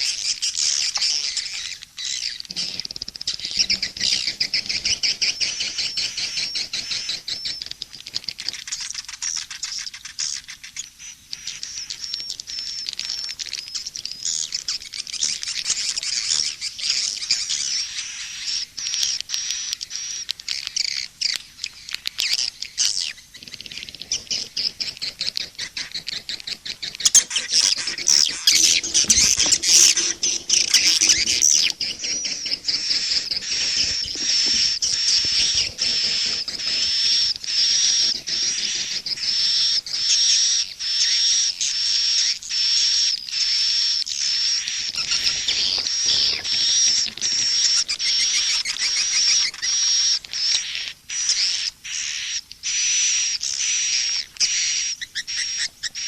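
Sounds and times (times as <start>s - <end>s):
repeated high bird chirp: 0.0s - 7.7s, 22.3s - 41.3s
swiftlet high twittering chirps: 22.3s - 41.2s.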